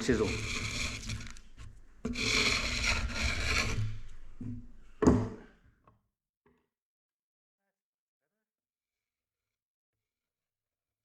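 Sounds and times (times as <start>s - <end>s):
hand scraper shaving timber: 0.0s - 4.7s.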